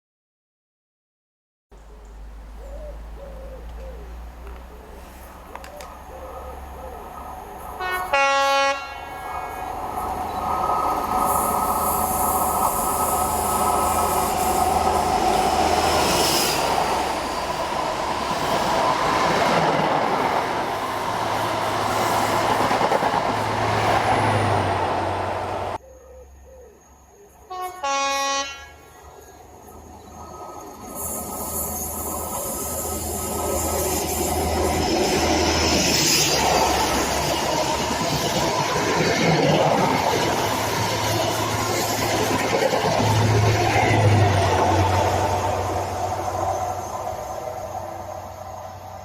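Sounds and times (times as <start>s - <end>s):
train engine and wheel noise: 1.8s - 25.8s, 27.0s - 49.0s
train horn blast: 7.7s - 9.8s, 27.5s - 29.0s.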